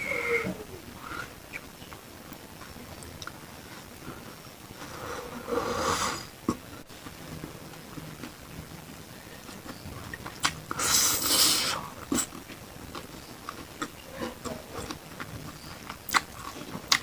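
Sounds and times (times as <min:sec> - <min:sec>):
mouth noise: 0:00.0 - 0:01.8
wet chewing clicks: 0:09.5 - 0:11.1, 0:12.0 - 0:17.0.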